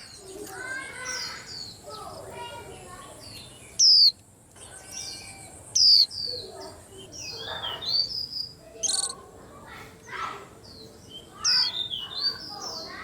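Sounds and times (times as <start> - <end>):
bird high downward calls: 3.2 - 9.3, 10.0 - 13.0
bird twittering: 3.3 - 9.2, 11.1 - 13.0.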